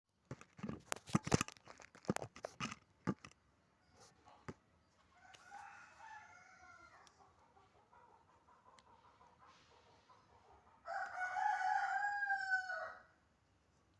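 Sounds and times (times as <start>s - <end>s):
rooster crowing: 5.2s - 7.1s, 10.8s - 13.2s.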